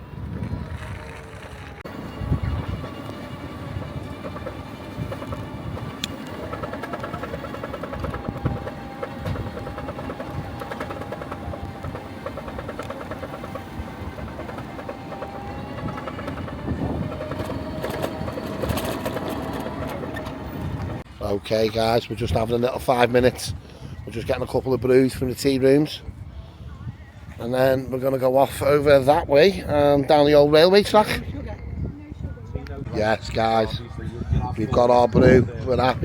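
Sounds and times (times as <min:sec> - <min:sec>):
small vehicle engine whine: 0:00.0 - 0:21.1.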